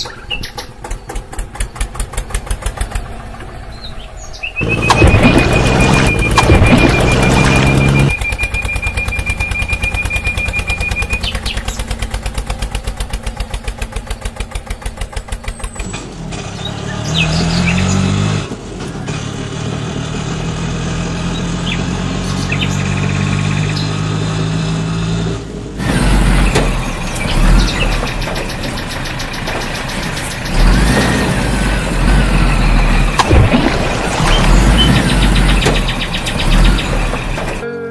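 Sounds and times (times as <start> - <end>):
vehicle engine: 0.0 - 37.9.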